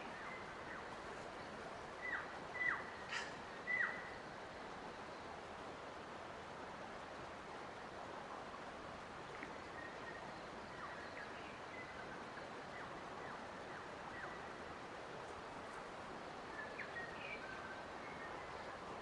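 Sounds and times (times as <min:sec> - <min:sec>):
rushing background hiss: 0:00.0 - 0:19.0.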